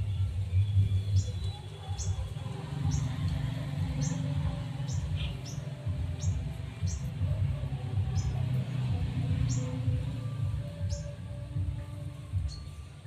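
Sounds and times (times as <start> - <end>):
small bird chirping: 0.1 - 7.4.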